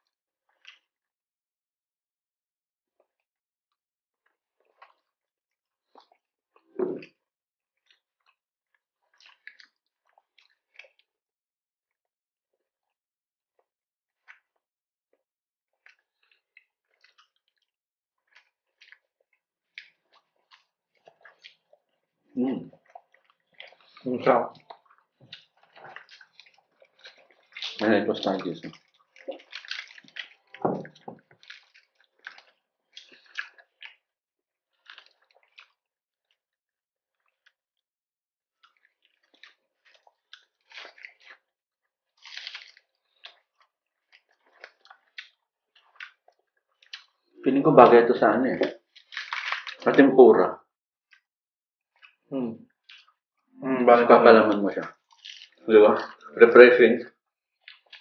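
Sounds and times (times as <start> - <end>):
chewing crispy fried food: 0.4 - 1.0, 4.2 - 11.2, 13.6 - 14.7, 15.7 - 37.9, 38.6 - 47.4, 48.6 - 50.0, 50.6 - 51.3, 51.9 - 53.4, 54.4 - 56.5, 57.1 - 58.0.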